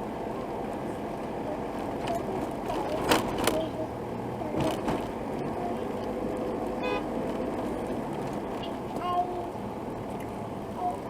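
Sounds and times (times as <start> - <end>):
road traffic: 0.0 - 11.0
car horn toot: 6.8 - 7.1.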